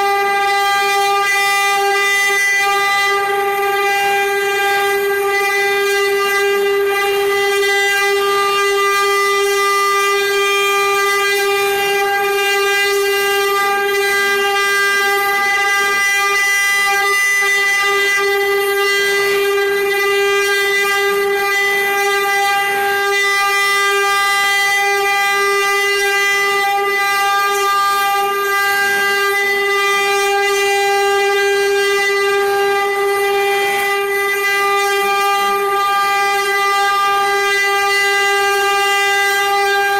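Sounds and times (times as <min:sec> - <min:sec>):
machine spindles whining: 0:00.0 - 0:39.9.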